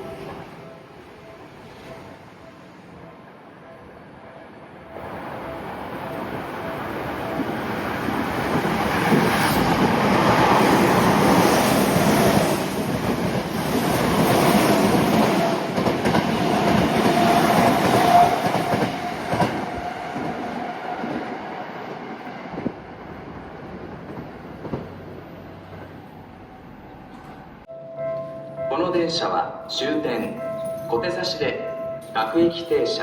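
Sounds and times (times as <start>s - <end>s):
train steady whine: 0.0s - 28.5s
train wheels rumbling on rails: 6.0s - 27.6s.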